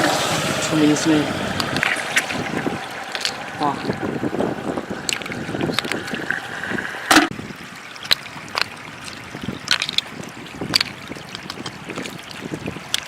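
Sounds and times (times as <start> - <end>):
short sharp splashes: 0.0 - 7.3
floodwater flowing and trickling: 0.0 - 13.0.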